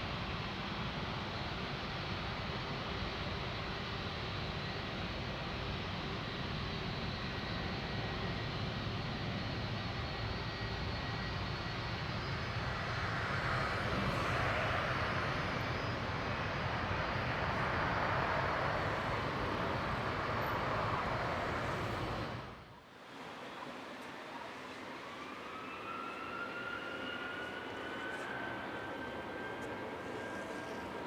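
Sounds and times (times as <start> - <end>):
jet engines passing: 6.7 - 22.7.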